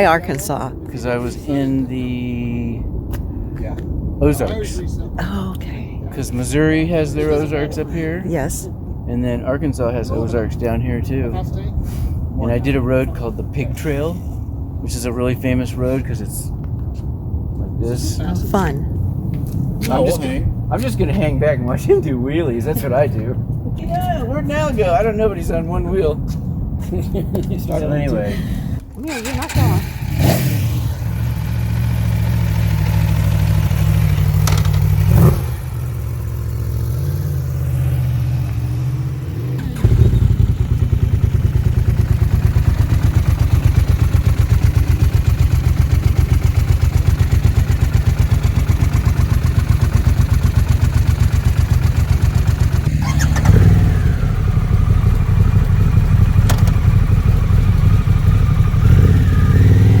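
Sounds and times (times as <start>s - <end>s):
motorcycle engines running: 6.1s - 28.3s, 29.0s - 60.0s
close engine pulsing fast: 29.1s - 60.0s.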